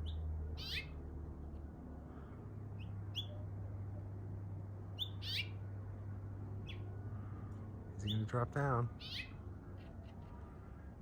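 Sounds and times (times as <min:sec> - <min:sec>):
bird chirping: 0:00.0 - 0:01.0, 0:02.8 - 0:03.4, 0:05.0 - 0:05.6, 0:09.0 - 0:09.4.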